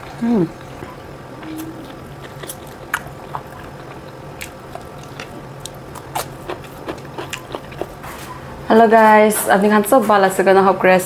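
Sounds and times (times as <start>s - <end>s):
biting and chewing food: 0.6s - 8.4s.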